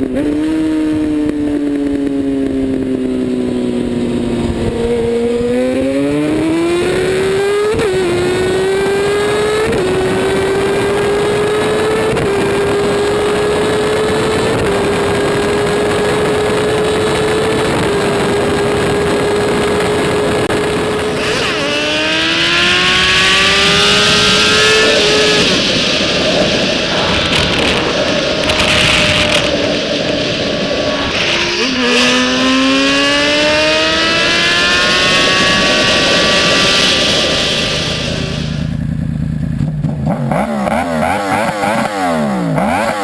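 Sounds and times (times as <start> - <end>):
motorcycle engine revving through gears: 0.0 - 43.0
wind rushing: 9.8 - 38.8.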